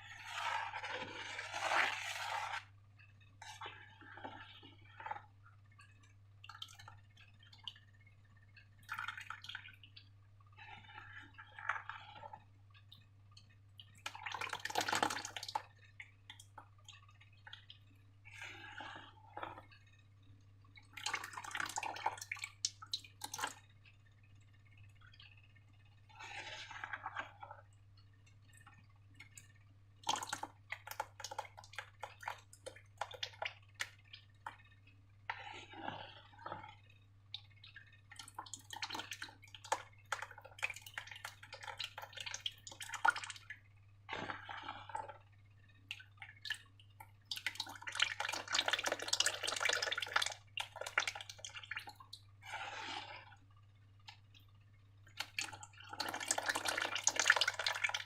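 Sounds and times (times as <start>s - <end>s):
slime squelching by hand: 0.0s - 2.7s, 45.9s - 53.4s.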